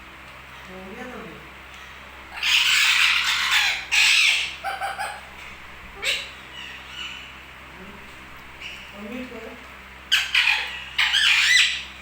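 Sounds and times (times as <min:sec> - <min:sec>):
parrot screeching: 0:02.3 - 0:07.4, 0:10.1 - 0:12.0.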